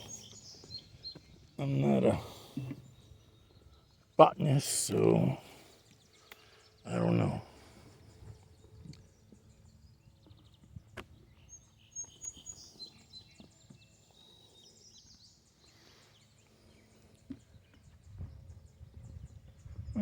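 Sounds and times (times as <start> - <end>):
high-pitched bird calls: 0.0 - 3.9.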